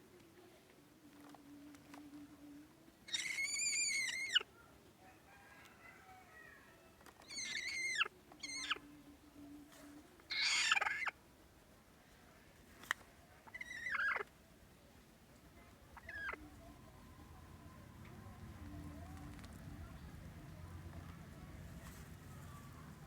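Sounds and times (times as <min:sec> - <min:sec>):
hen giving angry calls: 0:15.9 - 0:19.3.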